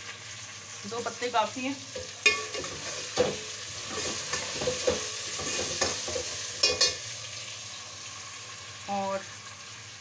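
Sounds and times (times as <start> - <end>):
chicken sizzling in oil: 0.0 - 10.0
spoon scraping pot: 2.0 - 7.0.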